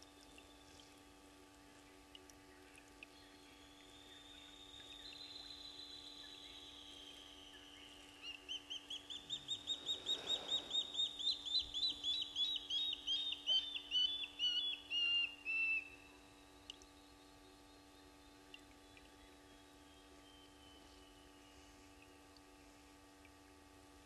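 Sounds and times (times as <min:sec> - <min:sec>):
faint steady hum: 0:00.0 - 0:24.0
bird whistling: 0:04.0 - 0:16.0.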